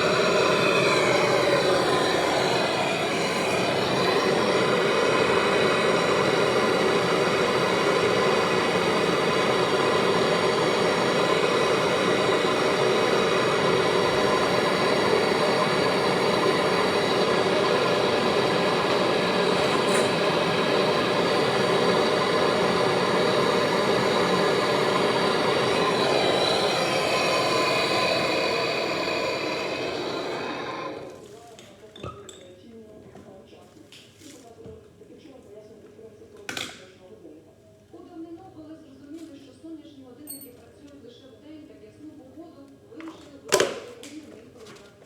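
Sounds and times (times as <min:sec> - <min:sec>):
machine humming with high tones: 0:00.0 - 0:31.2.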